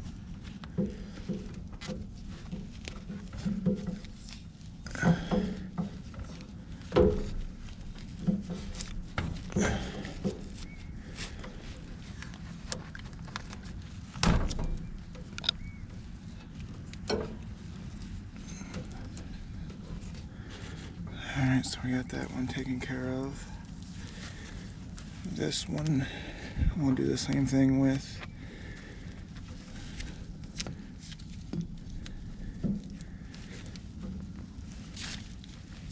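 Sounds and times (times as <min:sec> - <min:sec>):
low steady hum: 0:00.0 - 0:35.9
tape pulled and wrapped: 0:06.2 - 0:19.2, 0:29.6 - 0:35.9.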